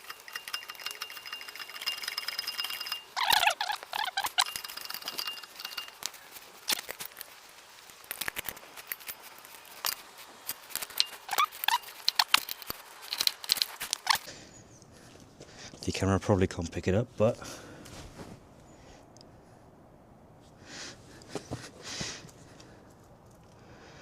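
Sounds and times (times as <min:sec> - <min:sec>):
short squeaks: 0:00.0 - 0:06.0, 0:10.9 - 0:14.3.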